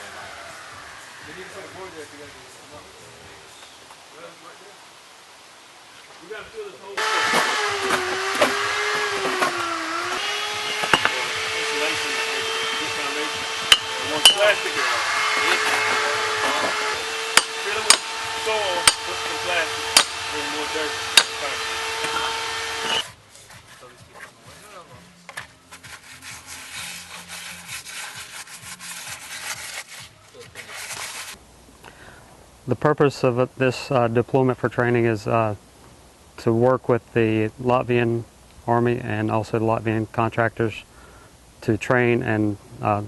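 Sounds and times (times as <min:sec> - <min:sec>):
hammer blows knocking: 0:07.0 - 0:23.1
power tool motor whine: 0:07.0 - 0:23.1.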